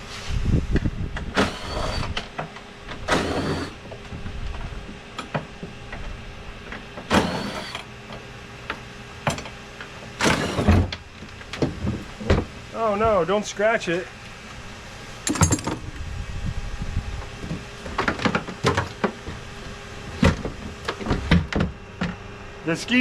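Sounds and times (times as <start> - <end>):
power ratchet whining: 1.2 - 4.2, 7.0 - 8.0, 10.2 - 11.0.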